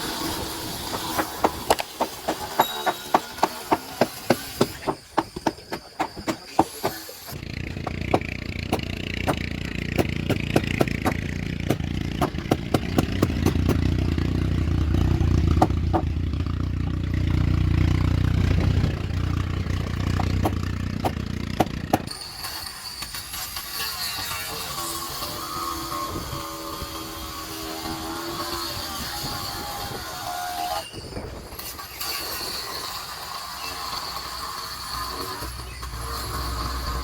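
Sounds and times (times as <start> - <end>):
motor running: 0.0 - 22.5
sharp knocks: 0.9 - 7.0, 7.8 - 13.9, 15.5 - 16.2, 20.1 - 22.1.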